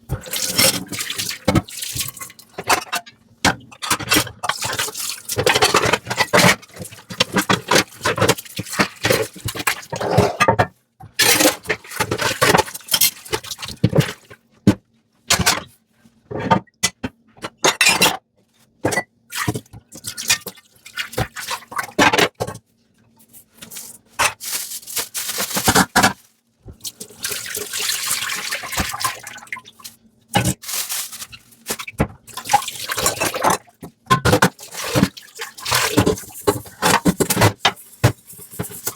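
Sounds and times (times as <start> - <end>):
sponge scrubbing dishes: 3.6 - 14.4, 23.2 - 38.9.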